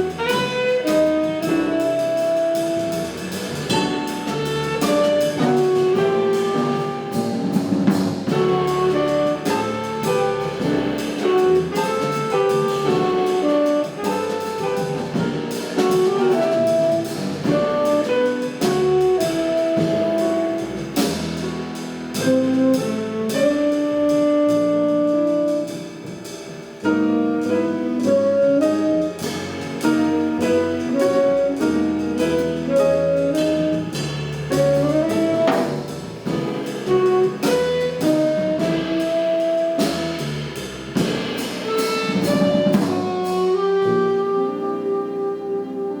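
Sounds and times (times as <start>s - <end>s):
saxophone lead: 0.0s - 3.0s, 8.3s - 20.7s, 22.2s - 26.0s, 36.9s - 40.2s, 41.7s - 46.0s
double bass: 0.0s - 46.0s
drums: 0.0s - 46.0s
piano: 0.0s - 46.0s.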